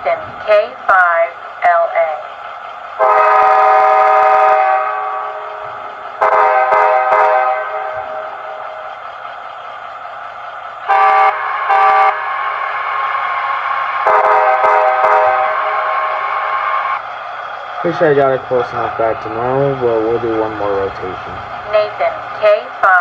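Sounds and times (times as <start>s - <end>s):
chordal train horn blasts: 3.0s - 8.7s, 10.9s - 13.0s, 14.0s - 17.0s
model diesel engine sound: 17.0s - 22.9s.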